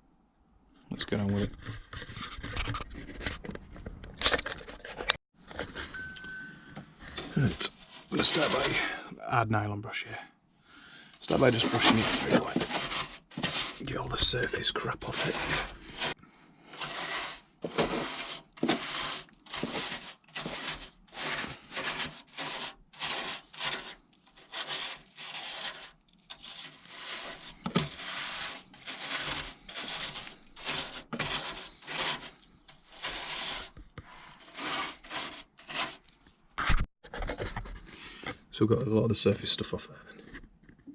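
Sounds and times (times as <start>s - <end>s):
brush scrubbing metal surface: 7.2s - 9.0s, 11.2s - 36.0s.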